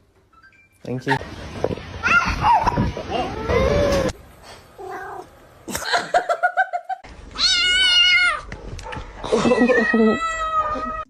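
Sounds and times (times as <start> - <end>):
cat yowling: 7.4 - 8.5.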